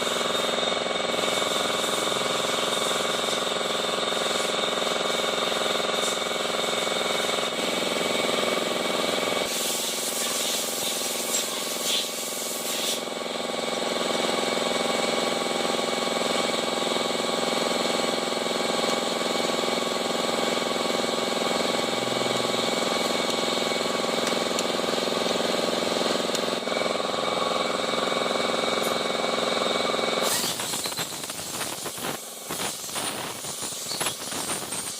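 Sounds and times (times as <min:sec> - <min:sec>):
hiss: 0:01.2 - 0:05.3, 0:06.0 - 0:06.2, 0:09.4 - 0:13.1, 0:30.2 - 0:34.9
car engine running: 0:18.3 - 0:32.8.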